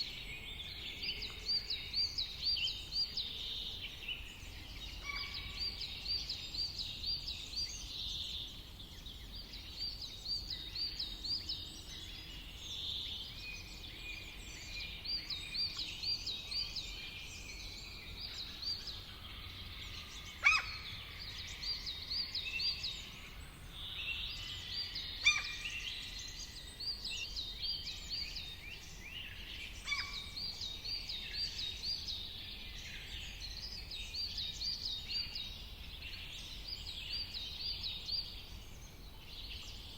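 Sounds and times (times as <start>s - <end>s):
birds singing and calling: 0.0s - 39.9s
sharp loud bird calls: 20.4s - 21.0s, 29.8s - 30.4s.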